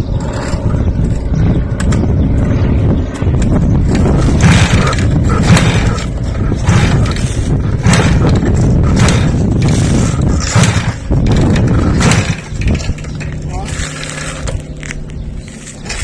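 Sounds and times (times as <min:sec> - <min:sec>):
motor running loudly: 0:00.0 - 0:16.0
irregular clattering knocks: 0:04.0 - 0:13.4.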